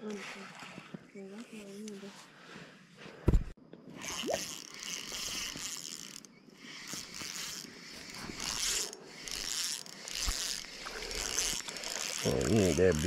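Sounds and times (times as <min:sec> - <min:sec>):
fishing reel ratchet whirring: 0:04.0 - 0:13.0.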